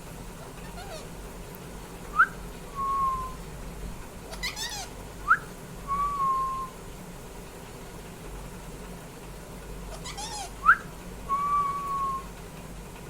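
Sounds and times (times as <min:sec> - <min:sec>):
parrot chirp: 0:00.4 - 0:01.1, 0:04.3 - 0:05.4, 0:09.9 - 0:10.9
parrot whistling: 0:02.2 - 0:03.4, 0:04.3 - 0:06.7, 0:09.9 - 0:12.3.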